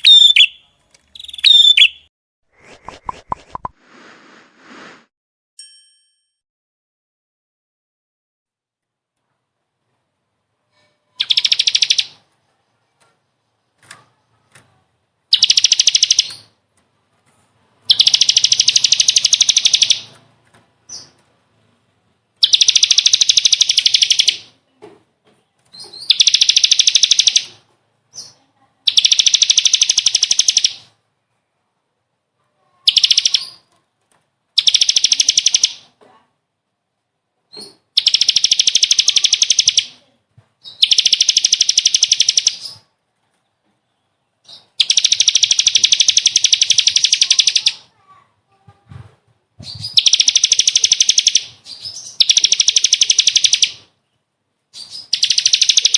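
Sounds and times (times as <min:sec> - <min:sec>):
faint short bird chirps: 0:00.0 - 0:02.1
songbird trilling: 0:00.0 - 0:02.1, 0:11.2 - 0:12.2, 0:17.9 - 0:20.1, 0:22.4 - 0:24.4, 0:26.0 - 0:27.5, 0:28.2 - 0:30.8, 0:32.9 - 0:33.6, 0:34.6 - 0:35.8, 0:38.0 - 0:39.9, 0:40.7 - 0:42.8, 0:44.5 - 0:47.8, 0:50.0 - 0:53.8, 0:54.8 - 0:55.9.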